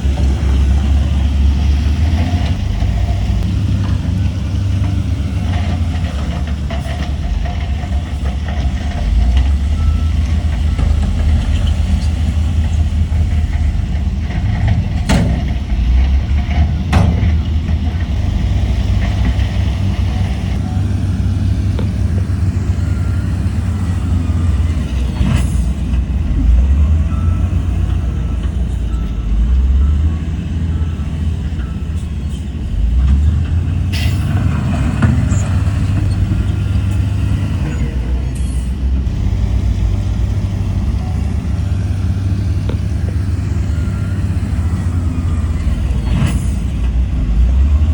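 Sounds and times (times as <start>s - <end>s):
heavy diesel engines rumbling: 0.0s - 47.9s.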